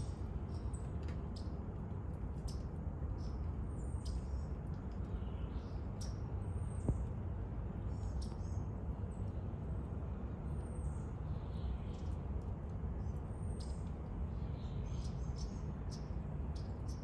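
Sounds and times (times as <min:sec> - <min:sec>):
faint chips and ticks: 0:00.0 - 0:07.2, 0:11.6 - 0:14.2
steady low rumble: 0:00.0 - 0:17.0
small birds calling: 0:02.4 - 0:07.1, 0:13.0 - 0:17.0.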